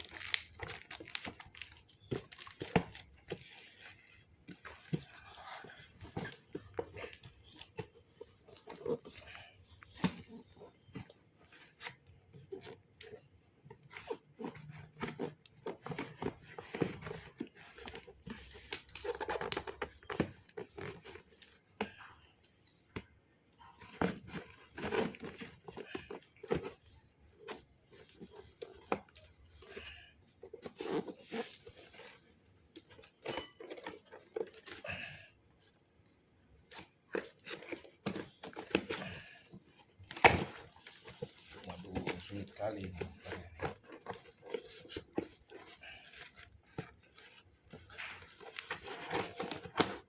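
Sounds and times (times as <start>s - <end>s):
packaging tearing and crinkling: 0.0s - 7.7s, 14.0s - 21.1s.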